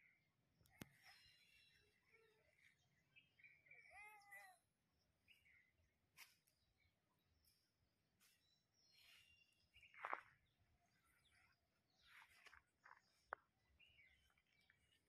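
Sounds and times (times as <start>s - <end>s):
bird chirps and calls: 0.8s - 4.6s.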